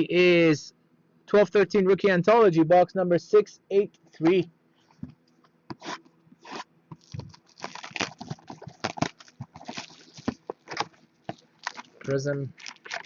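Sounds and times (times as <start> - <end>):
foil packs crinkling and tearing: 6.4 - 13.0.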